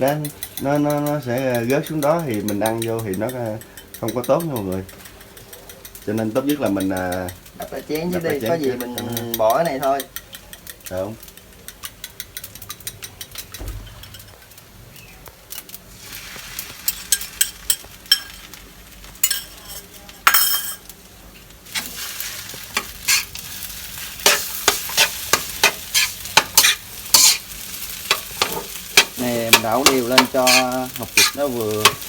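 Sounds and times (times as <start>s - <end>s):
rice sizzling in a pan: 0.0s - 32.0s
spatula scraping a pan: 21.7s - 32.0s.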